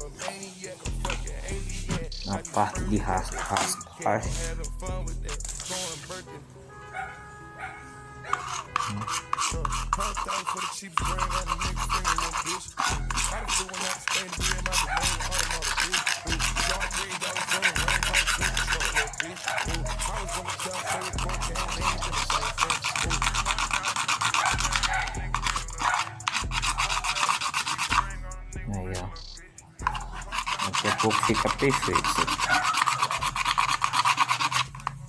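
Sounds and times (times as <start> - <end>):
background music bass beat: 0.0 - 6.4, 8.3 - 35.0
rasping scraping on plastic: 8.3 - 28.3, 29.8 - 35.0.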